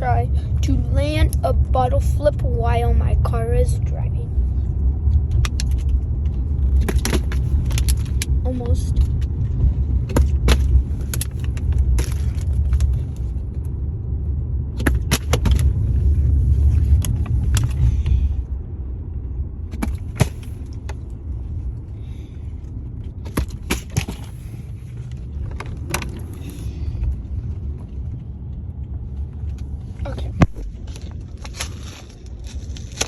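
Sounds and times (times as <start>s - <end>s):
car cabin rumble: 0.0s - 33.0s.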